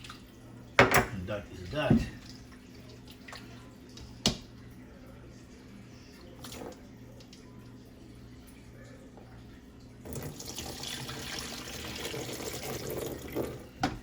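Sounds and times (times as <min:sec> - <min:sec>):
low steady hum: 0:00.0 - 0:14.0
utensil knocking on counter: 0:01.9 - 0:02.2.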